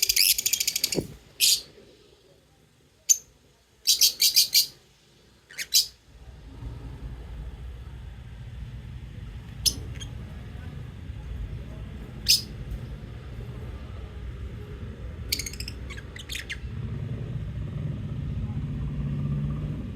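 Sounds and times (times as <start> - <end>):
lovebirds chirping: 0.0 - 1.9, 3.0 - 4.8, 5.4 - 6.0, 9.5 - 10.5, 12.1 - 12.8, 15.2 - 16.7
low steady rumble: 4.9 - 19.9.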